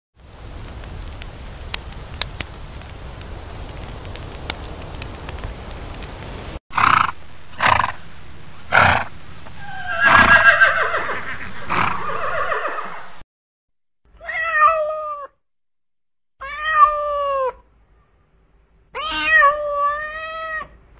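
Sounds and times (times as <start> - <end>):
rustling with crackles: 0.2 - 6.6
horse snorting: 8.7 - 9.1, 11.7 - 12.1
horse whinnying: 9.6 - 13.0.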